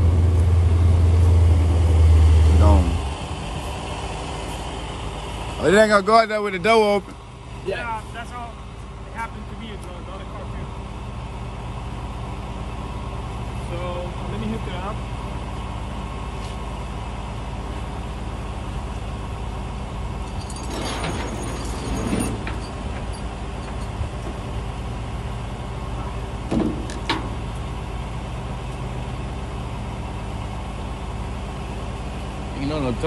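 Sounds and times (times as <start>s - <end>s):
vehicle engine idling: 0.0s - 33.0s
metallic clattering: 20.2s - 24.3s.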